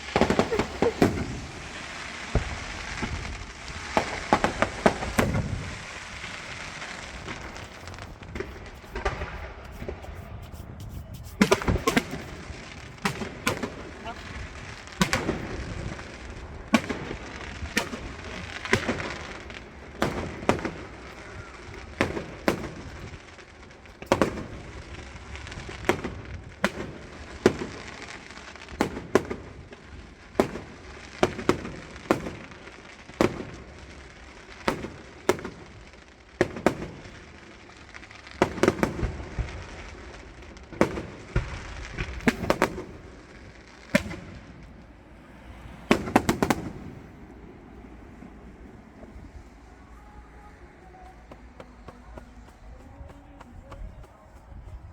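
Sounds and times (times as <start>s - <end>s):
firework shells banging: 0.0s - 23.1s, 40.8s - 54.7s
firework crackling: 0.0s - 54.9s.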